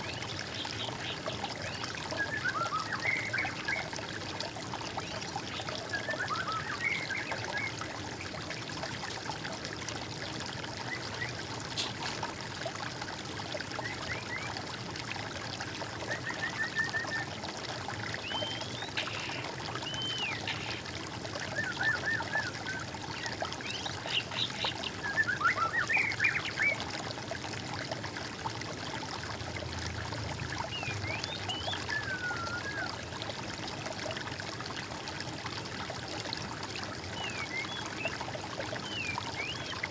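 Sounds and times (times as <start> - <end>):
songbirds singing: 0.0 - 4.0, 4.9 - 8.8, 18.0 - 26.9, 30.5 - 33.1, 37.0 - 39.9
water trickling in a stream: 0.0 - 39.9.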